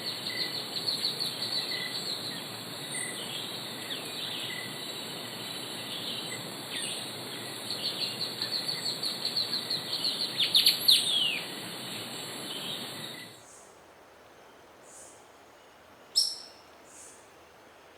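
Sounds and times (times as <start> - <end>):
insects hissing: 0.0 - 13.6.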